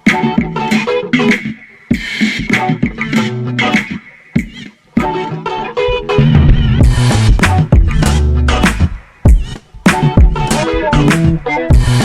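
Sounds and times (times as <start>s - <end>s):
music with bass and steady beat: 0.0s - 12.0s.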